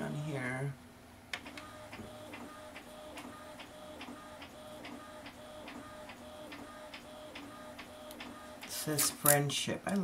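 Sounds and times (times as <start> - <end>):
printer clicking: 1.4 - 8.8
printer whirring tone: 1.4 - 9.1.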